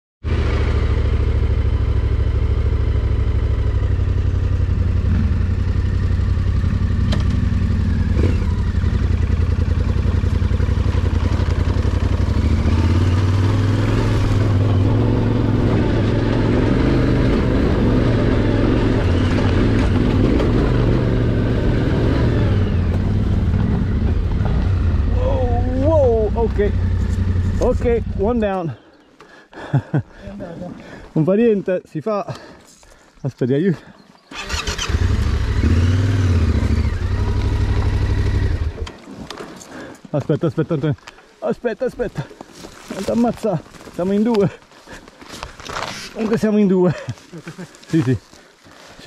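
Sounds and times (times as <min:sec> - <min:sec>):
motorcycle engine running at low revs: 0:00.2 - 0:28.4, 0:34.8 - 0:38.9.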